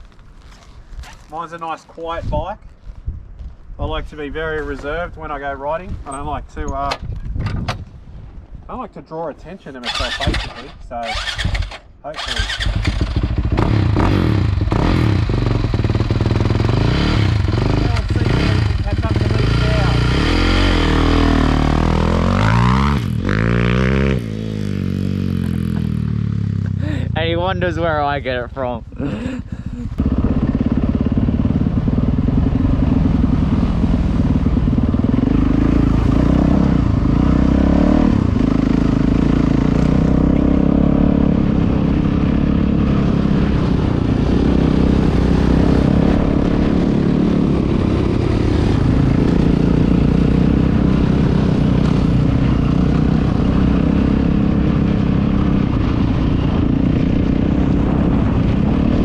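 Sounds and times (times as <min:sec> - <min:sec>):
dirt bike engine running: 0:11.1 - 0:27.3, 0:29.4 - 0:37.6.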